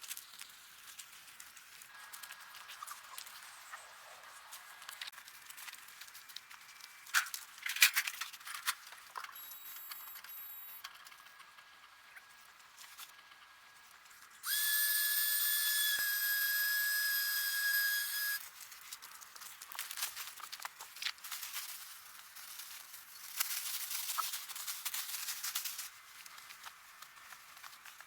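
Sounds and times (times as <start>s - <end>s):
high-pitched whistle: 14.4s - 18.5s.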